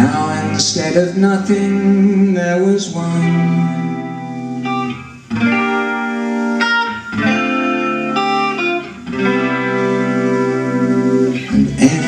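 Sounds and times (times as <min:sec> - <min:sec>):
person singing: 0:00.0 - 0:04.9, 0:09.2 - 0:12.0
guitar chords ringing: 0:00.0 - 0:12.0.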